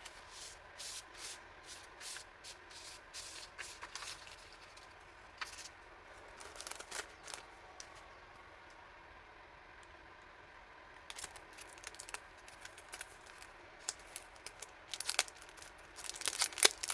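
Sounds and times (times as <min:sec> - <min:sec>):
paper rustling and crinkling: 0:00.0 - 0:05.7, 0:06.3 - 0:08.0, 0:11.2 - 0:16.9.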